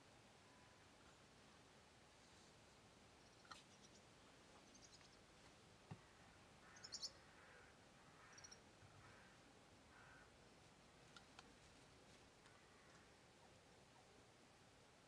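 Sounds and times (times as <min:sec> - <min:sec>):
bird chirps: 0:03.2 - 0:05.2, 0:06.6 - 0:07.2, 0:08.2 - 0:08.6.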